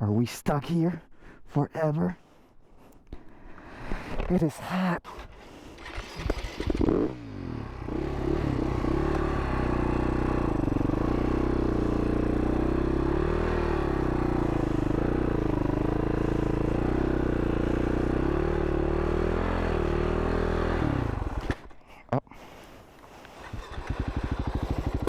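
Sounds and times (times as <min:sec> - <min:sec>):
motorcycle engine running at low revs: 0:06.2 - 0:21.6, 0:23.5 - 0:25.0.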